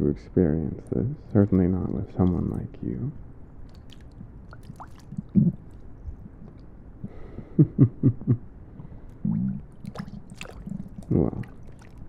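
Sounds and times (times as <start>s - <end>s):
stomach gurgling: 3.7s - 7.2s, 8.8s - 12.0s.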